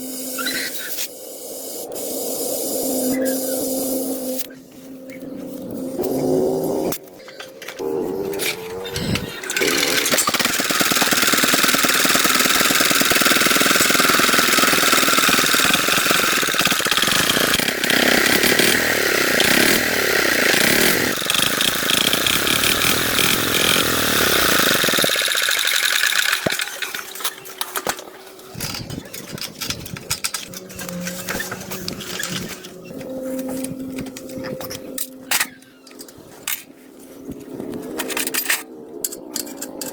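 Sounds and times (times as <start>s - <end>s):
power tool rattling on metal: 8.4s - 32.6s.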